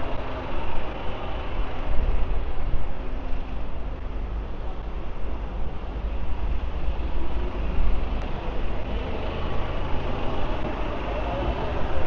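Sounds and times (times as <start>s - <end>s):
heavy low traffic rumble: 0.0s - 12.0s
vehicle engines running: 0.0s - 12.0s.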